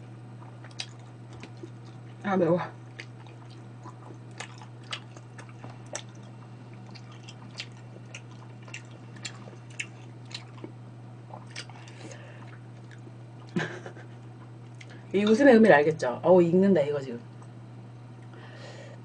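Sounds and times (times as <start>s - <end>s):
steady low hum: 0.0s - 19.0s
person chewing wetly: 0.3s - 2.2s, 2.8s - 13.6s, 14.3s - 15.1s.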